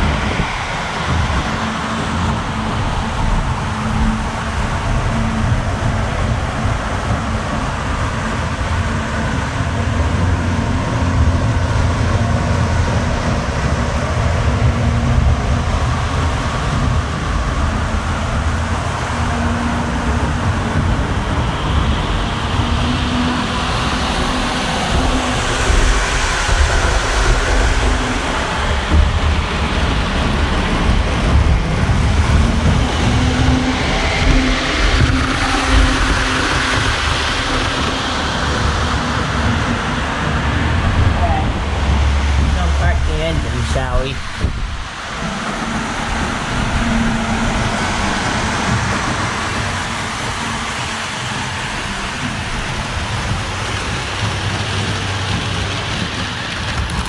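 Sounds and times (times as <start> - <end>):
model train rumbling on track: 0.0 - 57.0.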